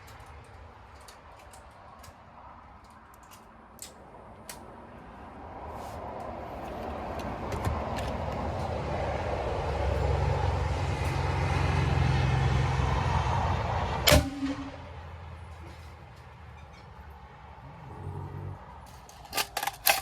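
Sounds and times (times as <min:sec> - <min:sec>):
vehicle engine approaching: 0:05.3 - 0:16.2
sharp crack: 0:14.1 - 0:14.8.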